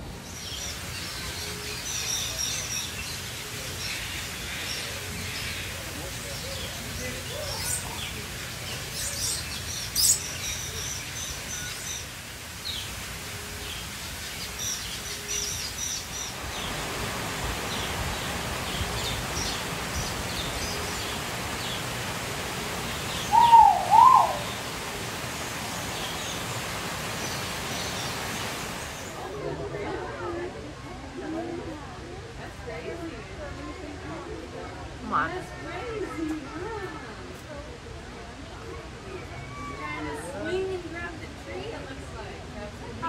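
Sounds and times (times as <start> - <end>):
birds chirping: 0.1 - 29.2
bird calls sweeping up and down: 22.9 - 24.8.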